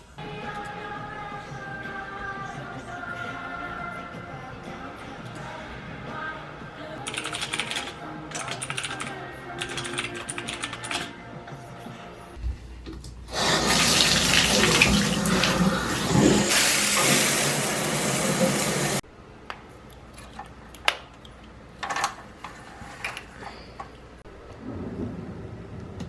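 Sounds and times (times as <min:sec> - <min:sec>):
water running hard: 0:13.3 - 0:19.0.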